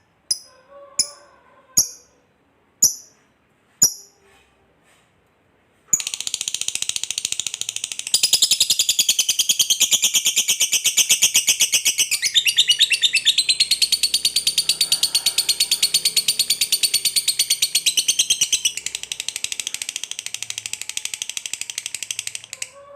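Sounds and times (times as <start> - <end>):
lovebird chattering: 1.8 - 2.1, 5.9 - 22.7.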